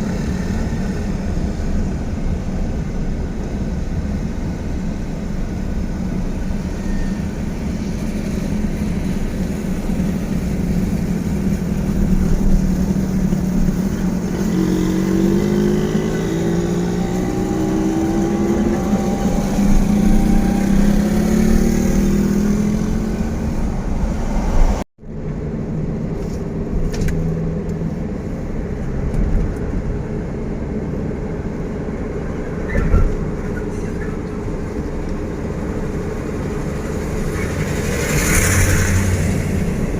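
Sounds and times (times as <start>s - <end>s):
vehicle engines running: 0.0s - 39.9s
engine accelerating: 10.3s - 24.8s.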